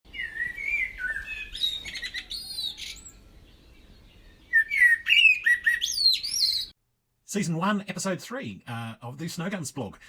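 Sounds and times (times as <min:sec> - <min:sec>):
bird song: 0:00.1 - 0:06.8.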